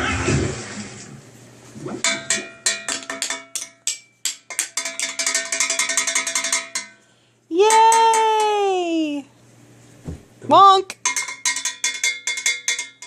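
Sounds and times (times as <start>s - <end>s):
metal cooking pots beaten as drums: 2.0s - 7.0s, 11.0s - 13.0s.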